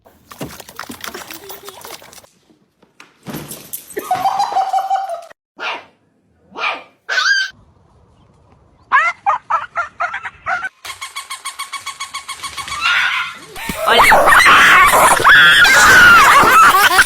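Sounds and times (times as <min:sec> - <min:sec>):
dog barking and yelping: 0:05.6 - 0:05.9, 0:06.5 - 0:07.6, 0:08.9 - 0:10.7, 0:12.8 - 0:17.0.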